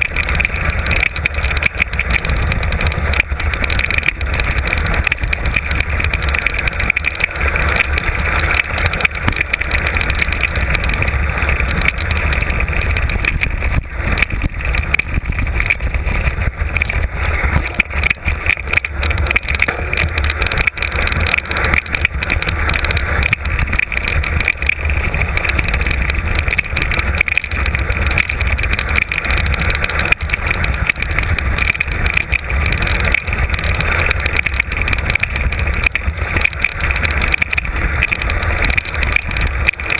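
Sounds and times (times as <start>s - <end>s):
bike rattling over rough ground: 0.0s - 39.9s
wind rumble on microphone: 0.0s - 39.9s.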